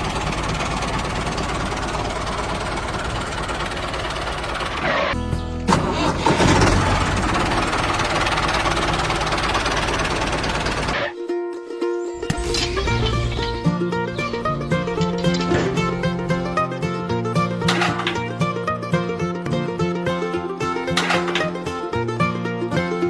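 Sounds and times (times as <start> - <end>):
engine running with low rumble: 0.0 - 11.1, 12.3 - 18.7
background music: 5.2 - 7.3, 11.1 - 23.0.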